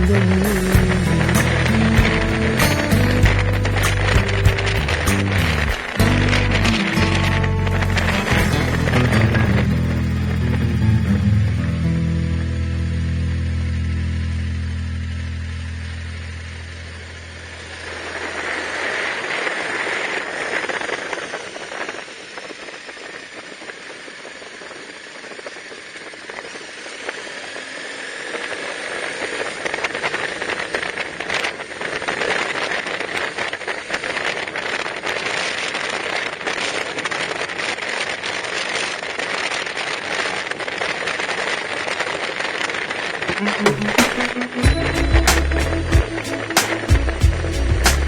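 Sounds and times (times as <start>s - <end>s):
vehicle driving on gravel: 0.0s - 20.0s.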